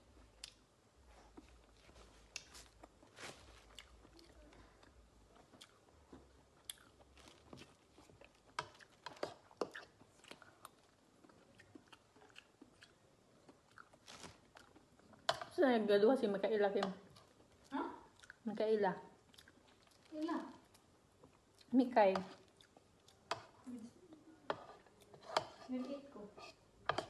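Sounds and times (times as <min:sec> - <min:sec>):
person chewing: 0:01.3 - 0:15.3, 0:17.1 - 0:18.4, 0:19.2 - 0:21.7, 0:22.3 - 0:23.6.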